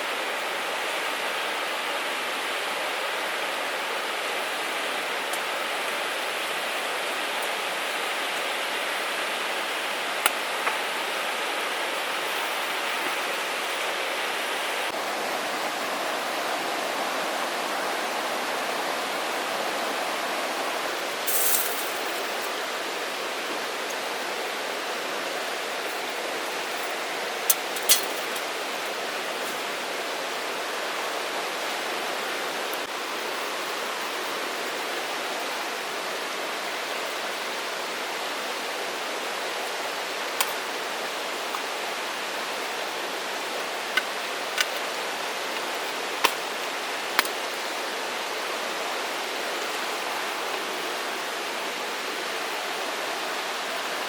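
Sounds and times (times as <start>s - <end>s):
short high hiss: 21.3s - 22.5s.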